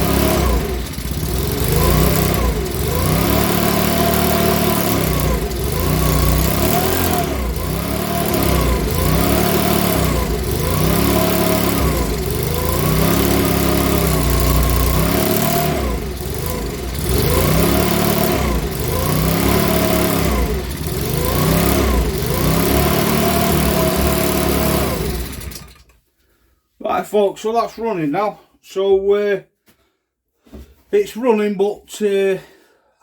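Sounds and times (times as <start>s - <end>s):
leaf blower engine revving: 0.0s - 25.9s.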